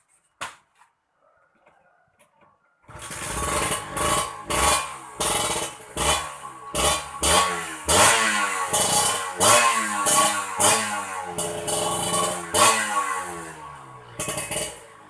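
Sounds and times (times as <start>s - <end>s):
motorcycle engine revving: 2.9s - 15.0s.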